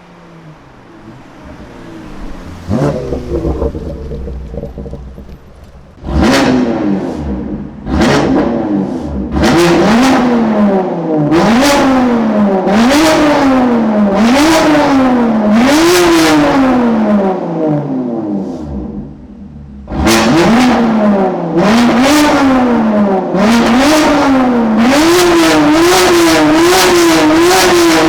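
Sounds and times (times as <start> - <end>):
car engine revving hard: 0.0 - 19.0, 19.8 - 28.0.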